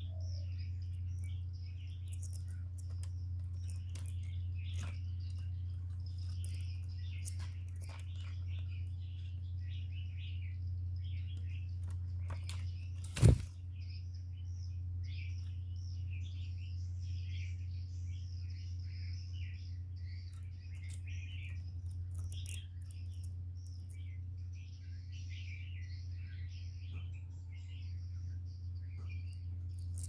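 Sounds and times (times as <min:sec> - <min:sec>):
small birds chirping: 0:00.0 - 0:30.0
steady low hum: 0:00.0 - 0:30.0.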